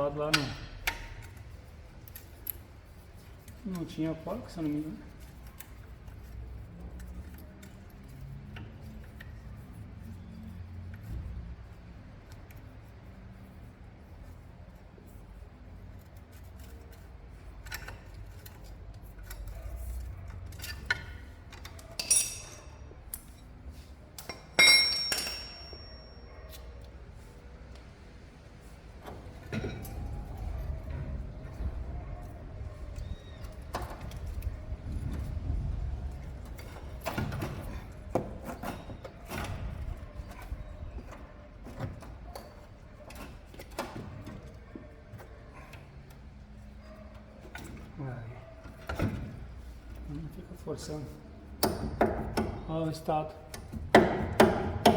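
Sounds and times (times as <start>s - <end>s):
hand tools tapping on metal: 0.2s - 1.4s, 20.4s - 23.4s, 24.1s - 26.9s, 51.6s - 52.7s, 53.5s - 54.9s
sharp metallic clanks: 22.0s - 22.8s, 24.2s - 26.2s.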